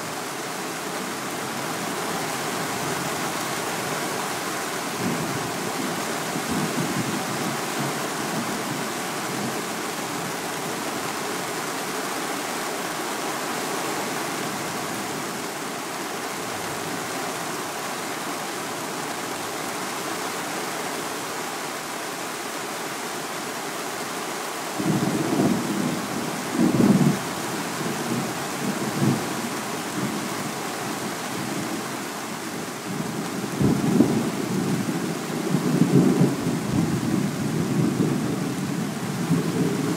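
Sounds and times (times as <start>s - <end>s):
heavy rain falling: 0.0s - 39.9s
thunder rumbling: 35.5s - 39.9s.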